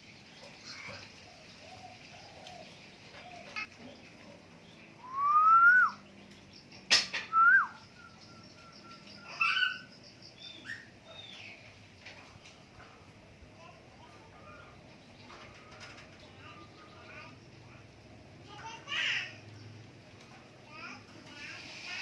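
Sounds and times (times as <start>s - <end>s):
bird fluty whistles: 5.0s - 6.0s, 7.3s - 9.2s.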